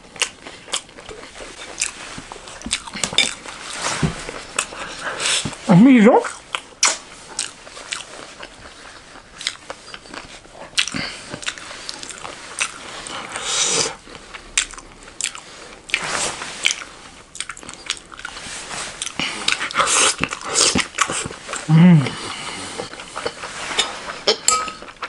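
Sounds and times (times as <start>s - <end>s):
biting and chewing: 0.0s - 5.6s, 16.6s - 25.0s.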